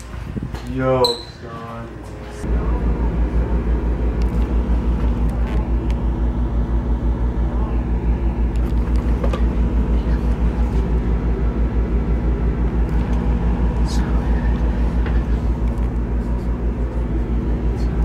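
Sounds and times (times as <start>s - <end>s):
constant hum: 0.0s - 18.0s
low rhythmic throbbing: 9.5s - 18.0s.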